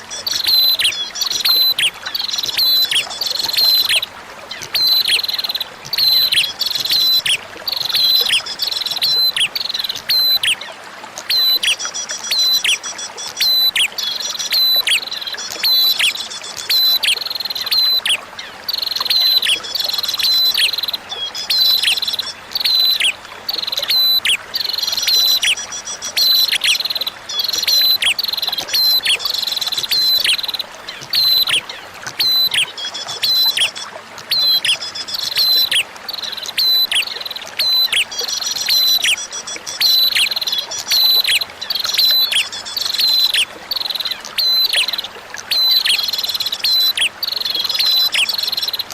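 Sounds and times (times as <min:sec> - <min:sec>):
bird chirping song: 0:00.0 - 0:10.7, 0:11.3 - 0:48.8
running water trickling: 0:00.0 - 0:48.9.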